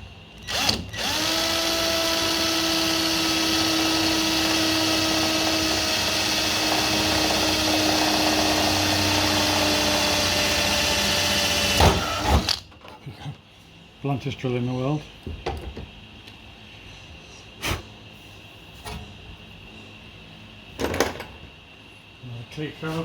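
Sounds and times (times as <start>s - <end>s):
power drill boring through steel: 0.4s - 12.6s.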